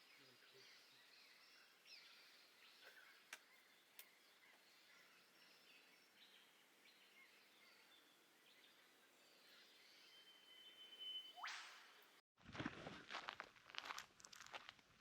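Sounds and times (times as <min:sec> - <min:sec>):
birds chirping and whistling: 0:00.0 - 0:11.8
thin steady whistle: 0:10.1 - 0:11.8.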